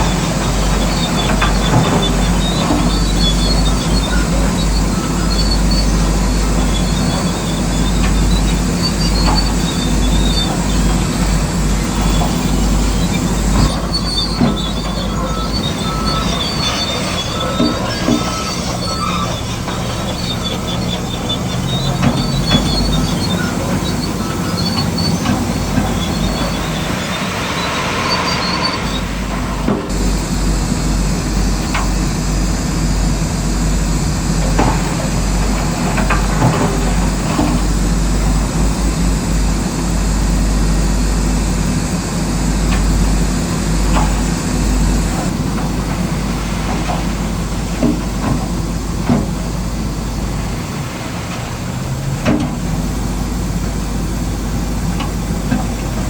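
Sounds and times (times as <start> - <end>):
high metallic squeals: 0.0 - 41.6
heavy machinery running: 0.0 - 56.0.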